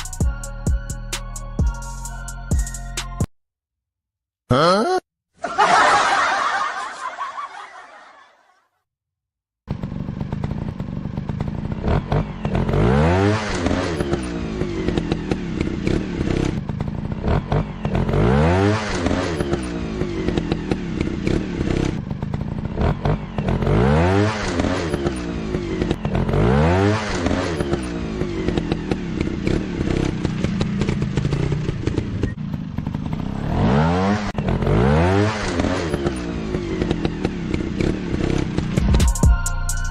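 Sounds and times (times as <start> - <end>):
dirt bike engine revving: 9.7 - 38.9.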